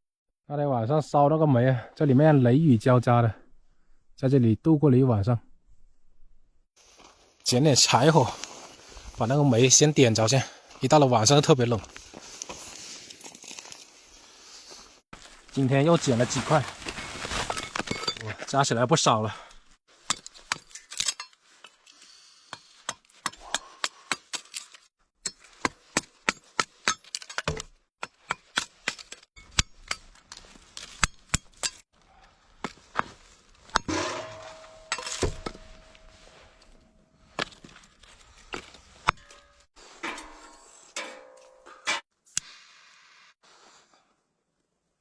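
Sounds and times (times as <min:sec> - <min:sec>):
firewood and coal cracking: 0:12.0 - 0:14.0
rustling: 0:12.0 - 0:18.1.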